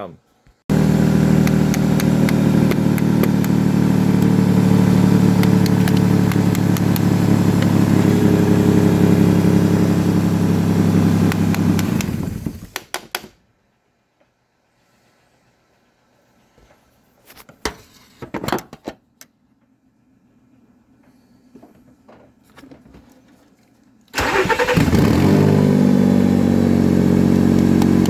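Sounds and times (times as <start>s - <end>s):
car engine running: 0.7s - 12.7s, 24.3s - 28.0s
clicks: 1.4s - 3.6s.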